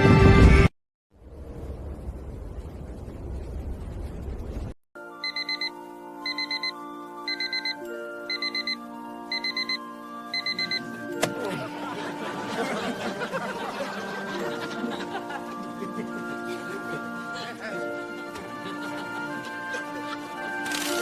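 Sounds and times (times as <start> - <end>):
digital alarm clock beeping: 5.2 - 10.9.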